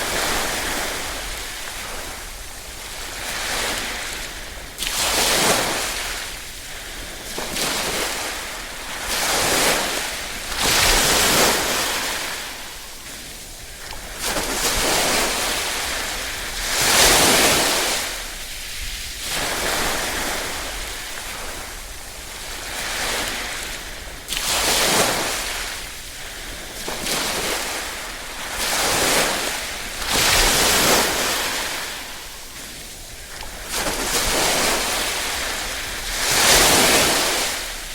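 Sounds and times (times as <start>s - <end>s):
small waves lapping ashore: 0.0s - 37.9s
wind hiss on microphone: 0.0s - 37.9s.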